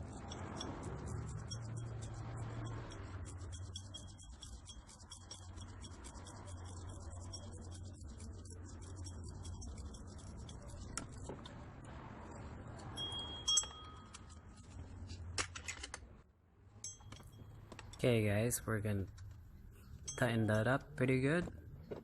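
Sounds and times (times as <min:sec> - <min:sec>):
metallic clink ringing: 0:00.0 - 0:07.6, 0:12.9 - 0:14.6, 0:16.8 - 0:18.0, 0:19.9 - 0:20.6
metal tools clicking on engine parts: 0:00.0 - 0:11.3, 0:12.7 - 0:16.0, 0:16.8 - 0:18.2
steady low hum: 0:00.0 - 0:15.2.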